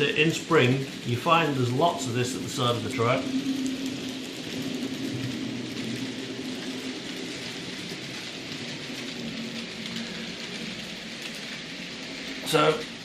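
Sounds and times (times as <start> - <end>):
low motor hum: 0.0 - 13.0
model train wheels rattling on rail: 0.0 - 13.0.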